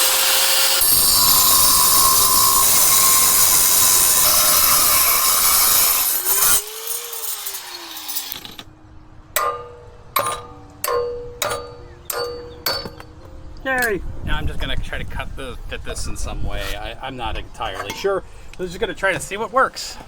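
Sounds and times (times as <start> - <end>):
power tool cutting metal pipe: 0.0 - 8.7.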